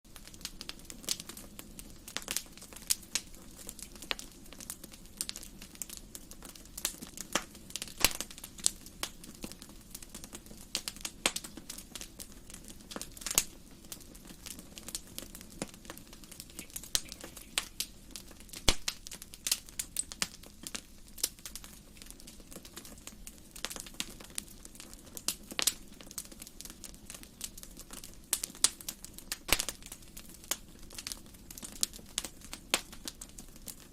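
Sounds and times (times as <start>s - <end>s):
low rush of flame: 0.1s - 26.7s
wood fire crackling: 0.1s - 33.9s.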